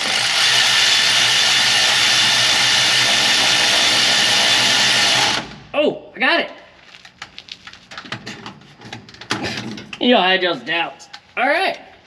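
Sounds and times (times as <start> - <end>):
pneumatic air tool whirring: 0.0 - 5.6.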